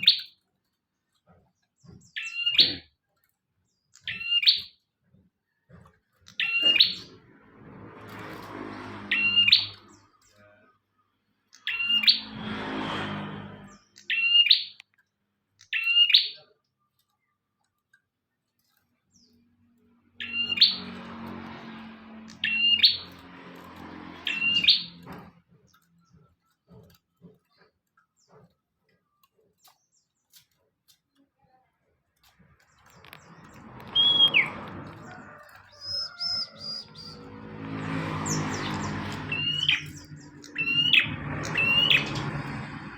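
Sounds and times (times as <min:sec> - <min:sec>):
harsh noisy sound: 0:11.8 - 0:14.0, 0:36.2 - 0:42.9
bird sharp chips: 0:32.2 - 0:37.2, 0:37.9 - 0:42.7.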